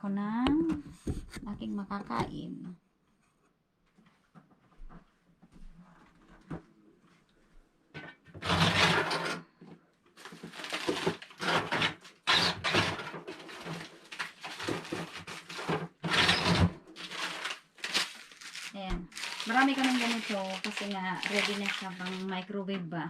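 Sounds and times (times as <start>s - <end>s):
packaging rustling: 10.2s - 22.5s.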